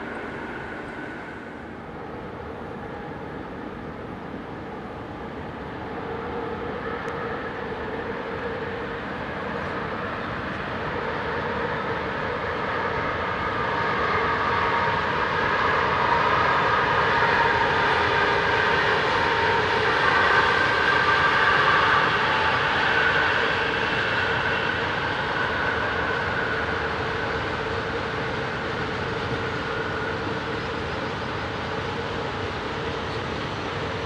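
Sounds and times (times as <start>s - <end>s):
freight train rumbling past: 0.0s - 4.5s.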